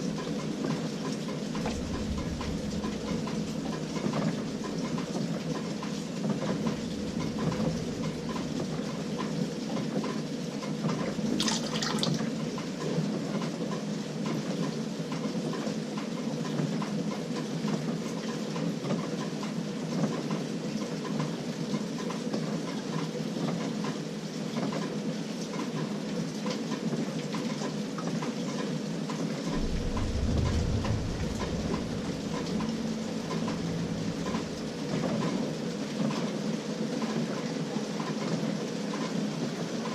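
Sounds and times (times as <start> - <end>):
water sloshing in washing machine: 0.0 - 13.5, 29.5 - 36.4
low rumble: 1.2 - 9.7, 29.5 - 36.1
motor hum: 29.5 - 35.7.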